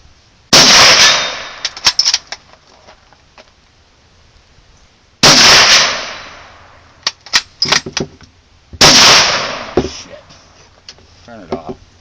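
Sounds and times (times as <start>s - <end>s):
rifle shots with echo: 0.5s - 1.6s, 5.2s - 6.5s, 8.8s - 9.8s.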